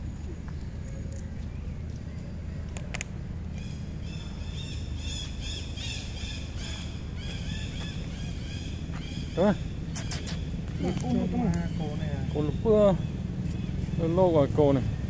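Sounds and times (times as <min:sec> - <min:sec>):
bird chirping rapidly: 0:03.6 - 0:15.0.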